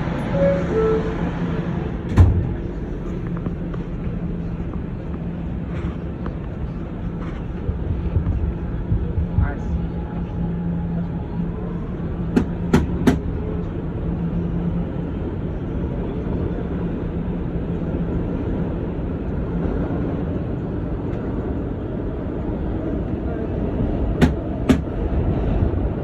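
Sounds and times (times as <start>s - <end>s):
low motor tone: 0.0s - 6.4s
wheels rumbling on rail: 0.0s - 26.0s
wheels clacking on track: 24.2s - 25.0s.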